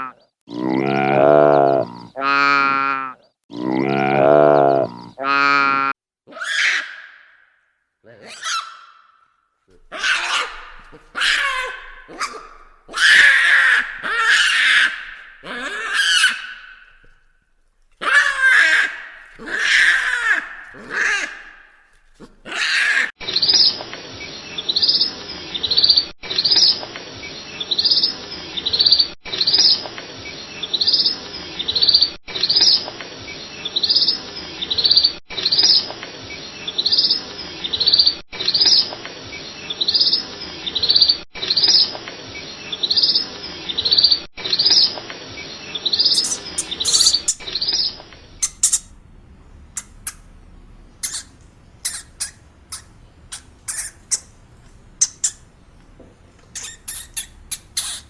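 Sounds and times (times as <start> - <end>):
bird chirping: 45.7 - 58.0.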